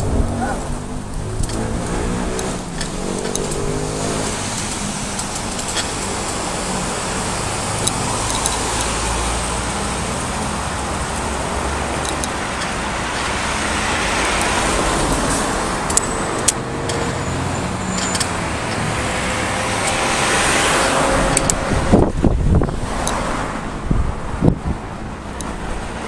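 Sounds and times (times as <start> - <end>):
vehicles passing: 0.0 - 26.0
sharp clicks: 1.1 - 6.4, 7.7 - 9.1, 11.9 - 13.4, 14.2 - 17.0, 21.3 - 22.2.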